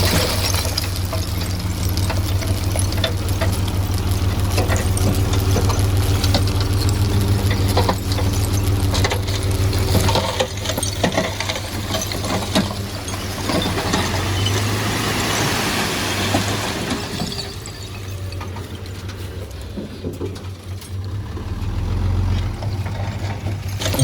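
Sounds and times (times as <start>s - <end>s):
heavy diesel engine running: 0.0s - 24.0s
metallic clinks and knocks: 4.6s - 14.6s.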